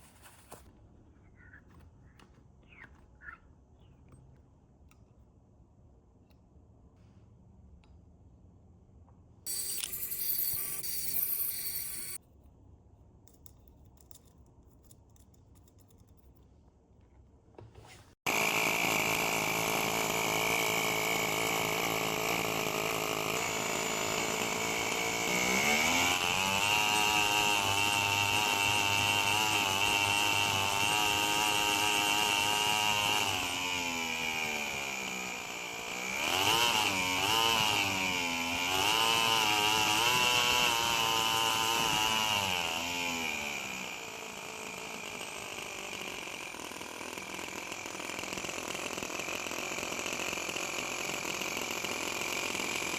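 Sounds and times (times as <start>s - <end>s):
nitro engine running and revving: 18.3s - 46.4s.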